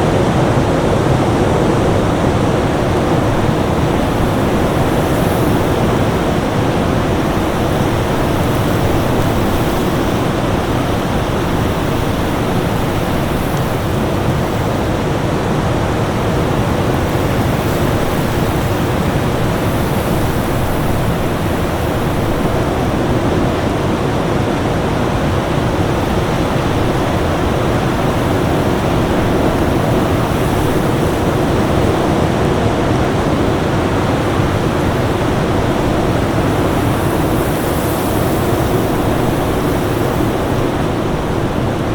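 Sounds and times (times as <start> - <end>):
winter storm rushing noise: 0.0 - 41.9.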